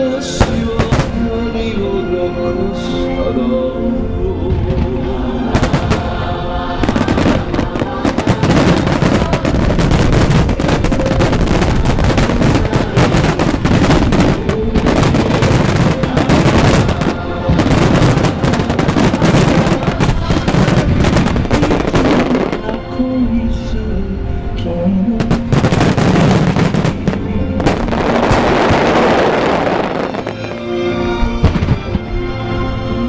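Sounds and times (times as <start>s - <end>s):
music playing: 0.0s - 33.0s
fireworks bursts and bangs: 0.4s - 1.3s, 4.6s - 6.2s, 6.8s - 22.6s, 25.2s - 30.6s.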